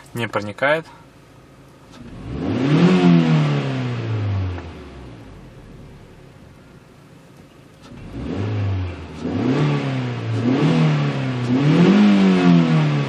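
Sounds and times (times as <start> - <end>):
car engine revving: 1.8 - 6.9, 7.7 - 13.0.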